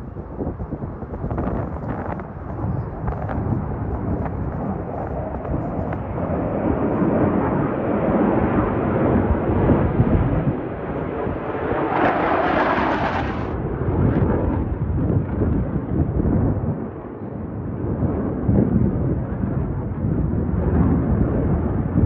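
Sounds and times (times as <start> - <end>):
jet flying past: 1.6 - 15.4.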